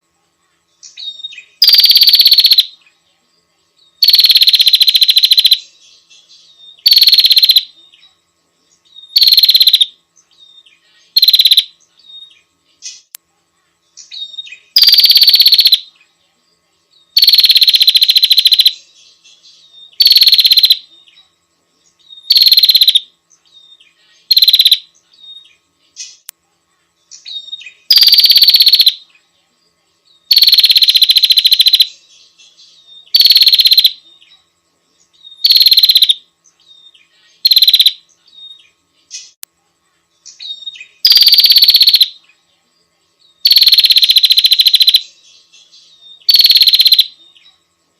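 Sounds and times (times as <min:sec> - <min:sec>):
bird buzzy rattling call: 0:01.0 - 0:02.8, 0:04.0 - 0:05.7, 0:06.8 - 0:07.7, 0:09.0 - 0:09.9, 0:11.1 - 0:11.7, 0:14.0 - 0:15.9, 0:17.2 - 0:18.9, 0:19.9 - 0:20.9, 0:22.1 - 0:23.1, 0:24.2 - 0:26.3, 0:27.2 - 0:29.0, 0:30.3 - 0:32.0, 0:33.0 - 0:34.0, 0:35.2 - 0:36.2, 0:37.4 - 0:39.4, 0:40.3 - 0:42.2, 0:43.4 - 0:45.2, 0:46.2 - 0:47.2.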